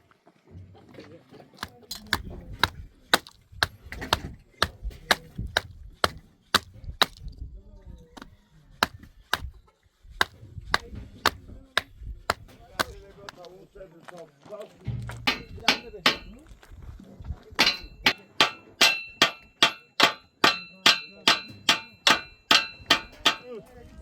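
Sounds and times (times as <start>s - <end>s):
wood being chopped: 1.6s - 7.4s, 8.2s - 9.6s, 10.2s - 13.4s, 15.1s - 16.4s, 17.6s - 23.6s.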